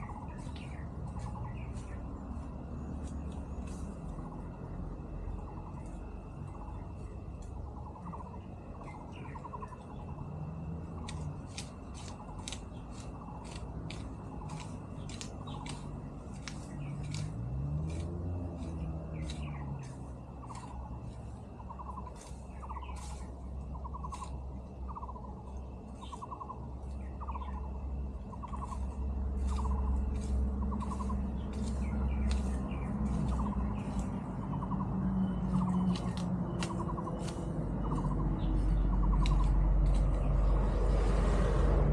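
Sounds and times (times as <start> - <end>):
short chirping calls: 0.0 - 40.8
low rumble: 0.0 - 41.9
sharp high clicks: 10.9 - 23.2, 28.3 - 40.6.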